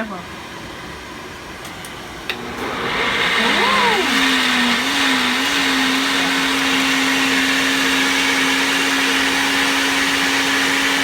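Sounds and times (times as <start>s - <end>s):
blender motor running: 2.3s - 11.0s.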